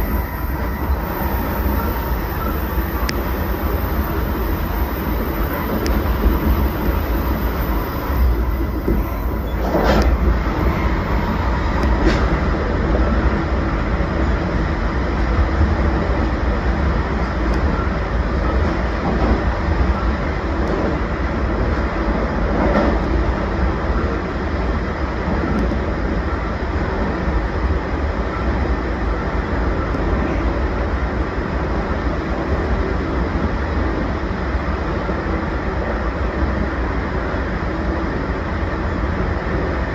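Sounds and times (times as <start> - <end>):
sharp train clatters: 0.0 - 13.6
train wheels rumbling on rails: 0.0 - 39.9.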